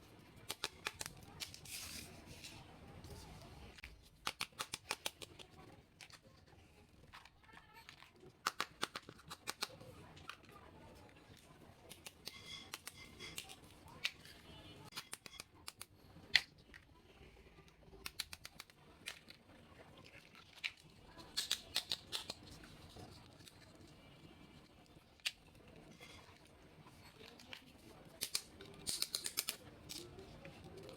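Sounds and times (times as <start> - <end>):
plastic toy pieces clicking: 0.4 - 1.6, 4.2 - 6.2, 7.1 - 10.4, 18.0 - 19.4, 20.4 - 22.6, 27.3 - 30.9.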